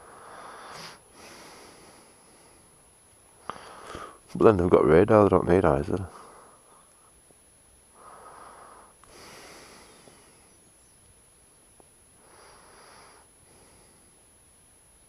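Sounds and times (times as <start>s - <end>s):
person breathing: 0.0s - 2.8s, 3.4s - 4.3s, 6.1s - 6.9s, 8.0s - 10.6s, 12.2s - 14.2s.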